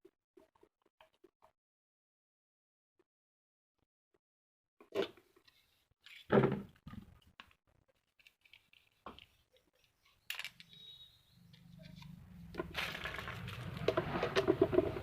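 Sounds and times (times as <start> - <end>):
fan parts knocking and clicking: 13.7 - 15.0.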